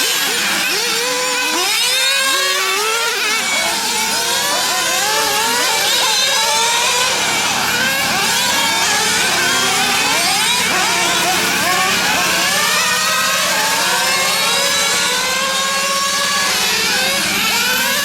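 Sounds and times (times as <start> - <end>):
rc car engines revving: 0.0 - 18.0.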